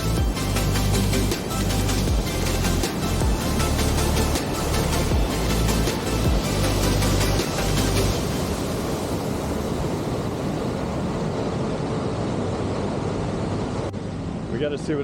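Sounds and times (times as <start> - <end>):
background music: 0.0 - 9.4
waterfall rushing: 0.0 - 11.4.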